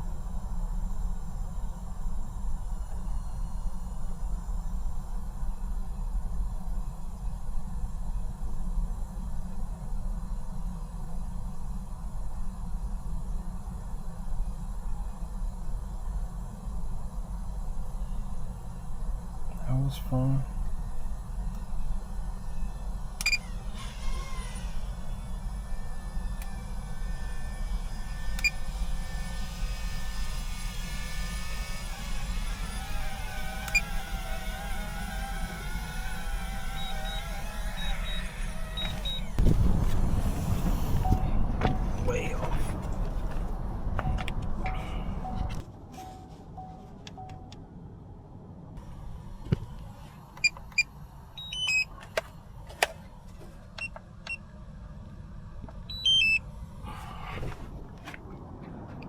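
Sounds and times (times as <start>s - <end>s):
drone propellers whining: 0.0s - 47.6s, 48.8s - 59.0s
electronic beeps: 36.8s - 39.3s, 55.9s - 56.4s
low rumble: 37.7s - 50.0s.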